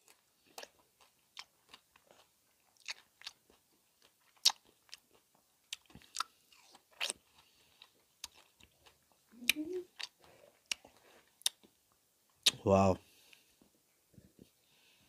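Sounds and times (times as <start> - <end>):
chewing fruit: 0.0 - 11.8.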